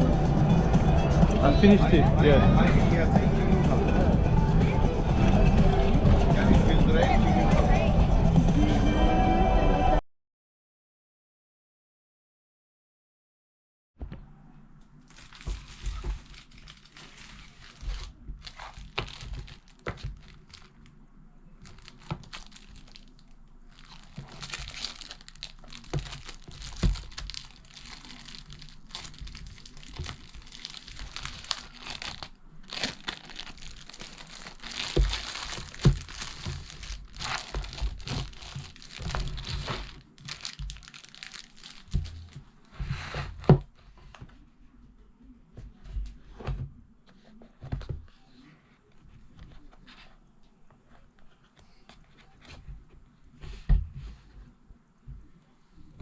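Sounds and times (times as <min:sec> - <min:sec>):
rustling and crinkling on microphone: 0:15.0 - 0:56.0.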